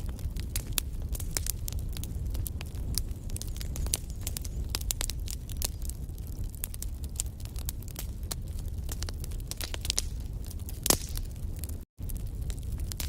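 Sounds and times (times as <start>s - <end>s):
low fire rumble: 0.0s - 13.0s
sharp snaps and pops: 0.0s - 13.0s
wood fire crackling: 0.0s - 13.0s.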